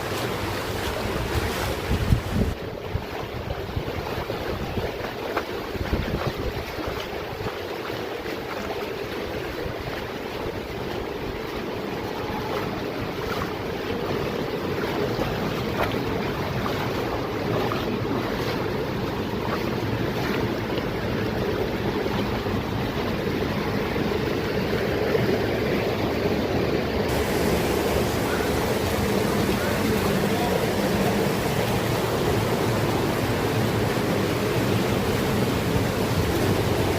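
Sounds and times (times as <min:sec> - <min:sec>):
wind buffeting microphone: 0:00.0 - 0:07.7, 0:27.1 - 0:36.9
flowing water rushing: 0:00.0 - 0:36.9.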